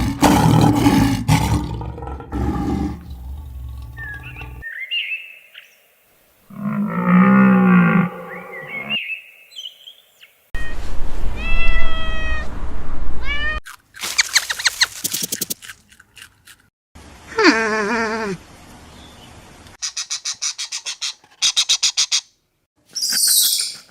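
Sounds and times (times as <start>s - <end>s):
low pitched animal call: 0.0s - 4.7s
call with falling glides: 2.9s - 5.7s
animal chirps: 3.9s - 5.2s, 22.9s - 23.9s.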